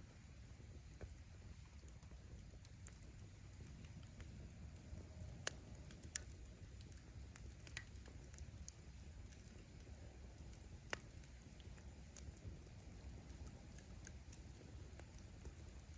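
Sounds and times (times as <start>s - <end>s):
wood bonfire crackling: 0.0s - 15.9s
sharp pops of burning wood: 5.4s - 15.9s.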